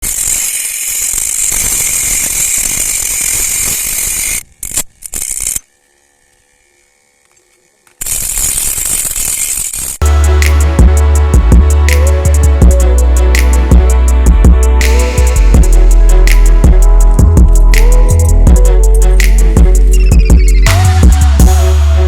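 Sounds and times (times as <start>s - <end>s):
music with drum beat: 10.0s - 21.9s.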